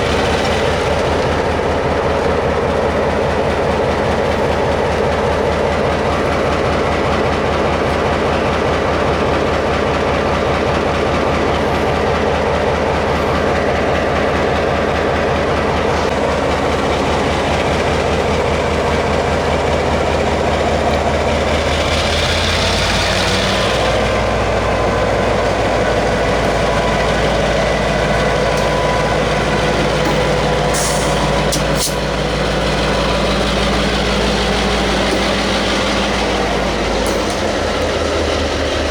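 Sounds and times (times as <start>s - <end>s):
locomotive engine drone: 0.0s - 38.9s
wheels clattering on rail: 0.0s - 38.9s.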